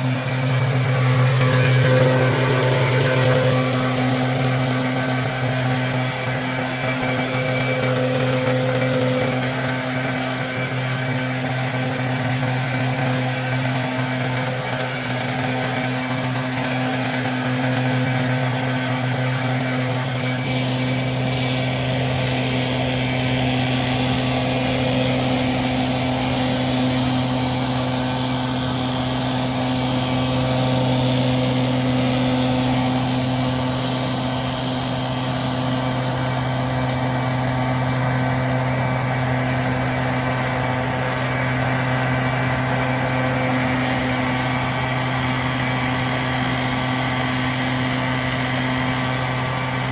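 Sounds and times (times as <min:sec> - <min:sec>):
engine running steadily: 0:00.0 - 0:49.9.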